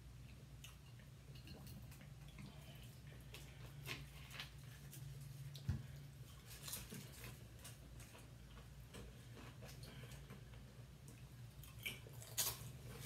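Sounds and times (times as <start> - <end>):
low steady hum: 0.0 - 13.0
potato chips crunched and chewed: 11.6 - 13.0.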